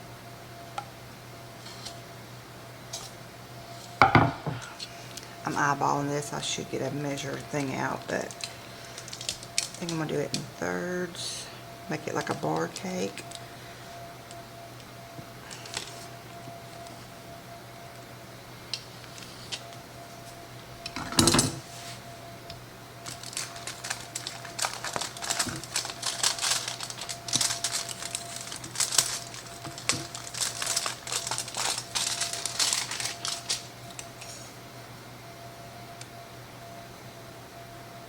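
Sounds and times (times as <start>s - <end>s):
knock: 4.0s - 4.6s.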